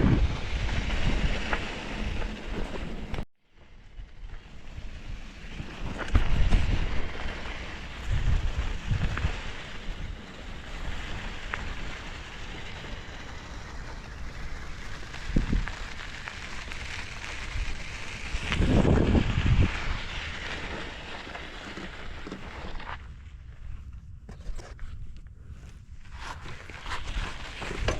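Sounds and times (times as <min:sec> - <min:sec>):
wind buffeting microphone: 0:00.0 - 0:03.2, 0:03.9 - 0:20.8
bike tyres on dirt trail: 0:00.0 - 0:27.9.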